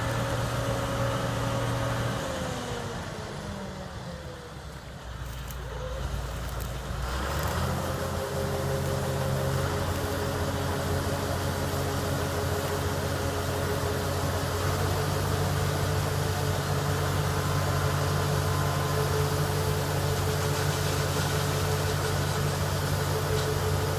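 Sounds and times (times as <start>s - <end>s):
combine harvester engine humming: 0.0s - 23.9s.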